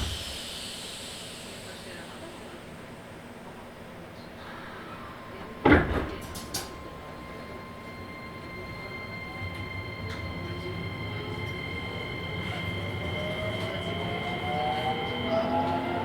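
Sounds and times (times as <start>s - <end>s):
train running noise: 0.0s - 16.0s
electric train motor whine: 6.3s - 16.0s.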